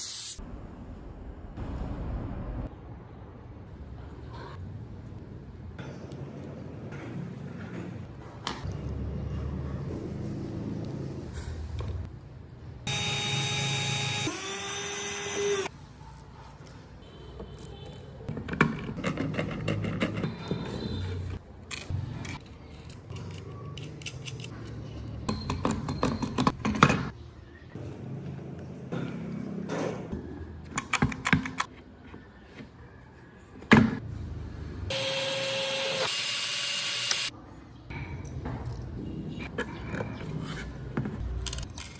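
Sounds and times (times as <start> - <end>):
electric power tool whining: 12.9 - 15.7, 34.9 - 37.3.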